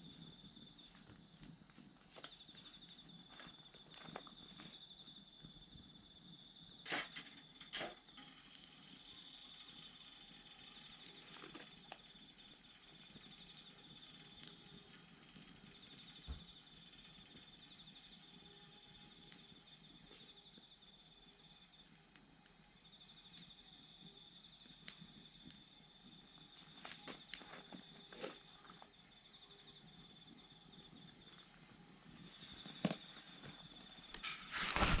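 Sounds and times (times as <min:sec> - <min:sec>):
campfire crackling: 0:00.0 - 0:35.0
crickets chirping: 0:00.0 - 0:35.0.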